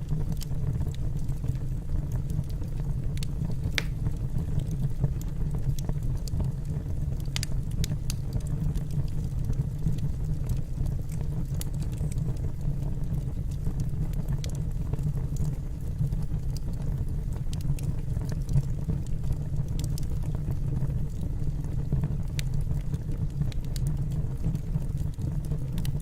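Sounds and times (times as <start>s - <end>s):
wood fire burning: 0.0s - 26.0s.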